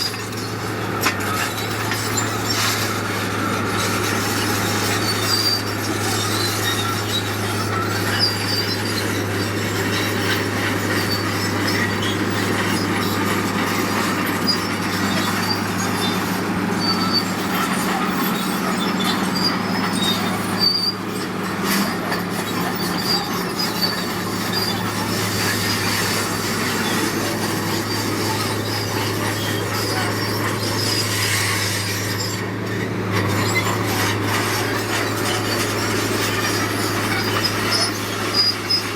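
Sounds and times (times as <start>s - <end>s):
diesel engine hum: 0.0s - 38.9s
grinding noise: 0.0s - 38.9s
high metallic squeaks: 0.0s - 38.9s.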